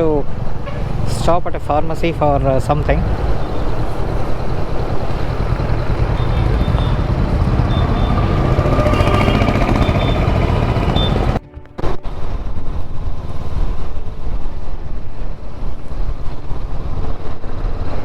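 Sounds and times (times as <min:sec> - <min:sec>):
motorcycle engine rumble: 0:00.0 - 0:14.7
road noise: 0:00.0 - 0:18.0
faint high whine: 0:02.7 - 0:16.2.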